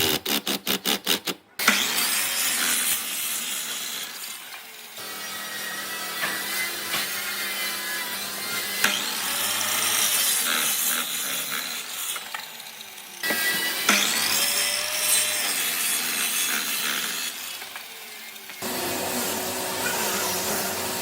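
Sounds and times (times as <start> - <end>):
tool scraping wood: 0.0 - 1.8.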